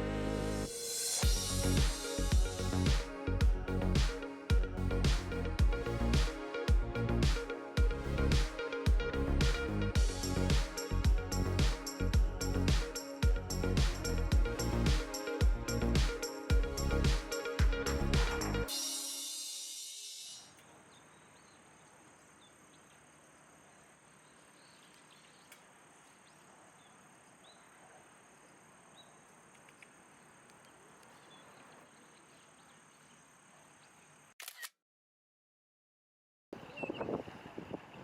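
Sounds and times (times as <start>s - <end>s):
thin high whine: 0.0s - 20.8s
low steady hiss: 0.0s - 34.4s.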